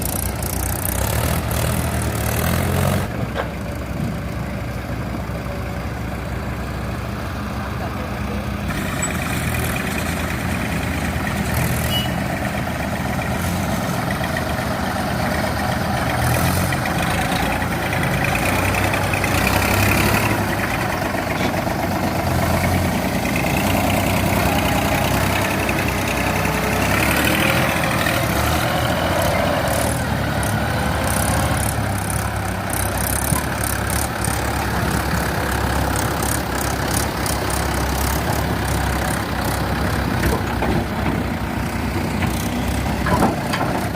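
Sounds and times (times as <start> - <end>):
diesel engines running: 0.0 - 43.9.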